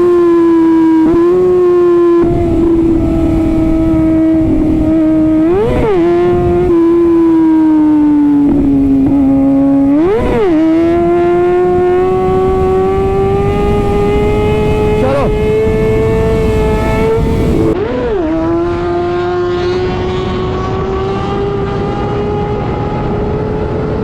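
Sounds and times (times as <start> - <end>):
motorcycle engine at high revs: 0.0 - 24.0
wind rush: 2.2 - 18.8.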